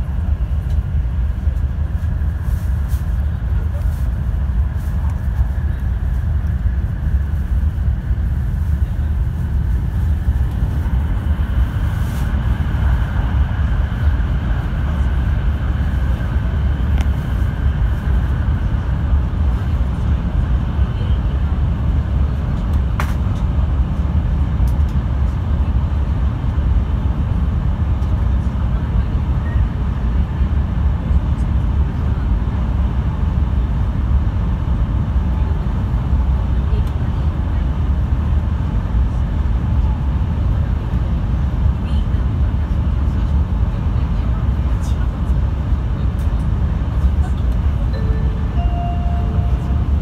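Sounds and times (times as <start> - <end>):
train rumble: 0.0 - 50.0.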